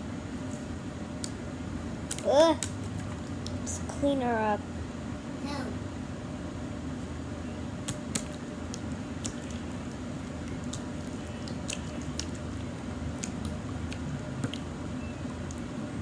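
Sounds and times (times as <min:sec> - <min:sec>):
slime squishing: 0:02.1 - 0:03.7, 0:07.8 - 0:15.7
sticky clicks and pops: 0:07.9 - 0:09.6.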